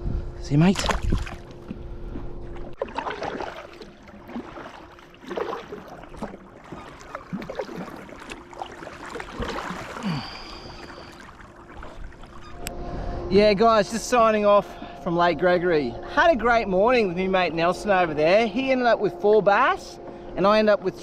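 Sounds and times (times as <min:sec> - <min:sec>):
water splashing around kayak: 0:00.5 - 0:13.1
water dripping and gurgling: 0:02.5 - 0:12.7.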